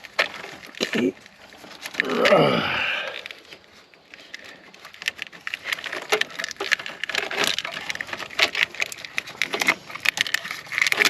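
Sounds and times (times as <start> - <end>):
car parts clicking and snapping: 3.1 - 11.0.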